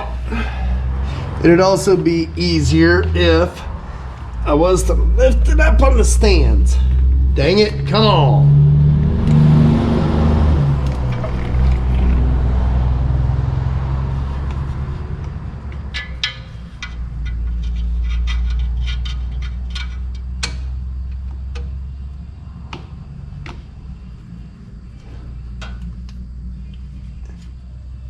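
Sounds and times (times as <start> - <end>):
low mechanical hum: 0.0 - 28.0
wrench clinking on steel: 15.7 - 20.7.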